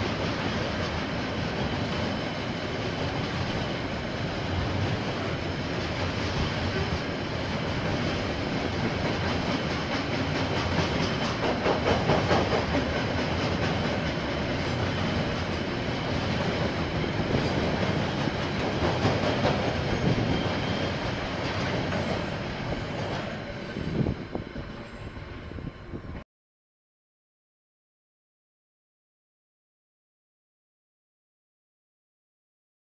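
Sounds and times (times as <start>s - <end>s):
train wheels clattering on rails: 0.0s - 24.9s.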